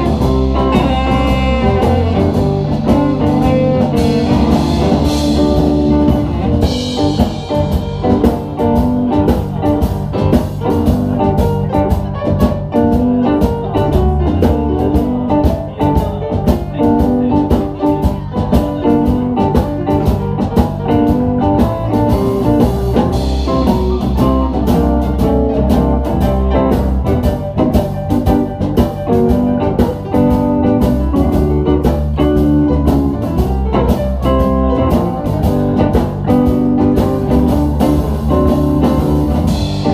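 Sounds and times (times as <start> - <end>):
blues band instrumental: 0.0 - 39.9.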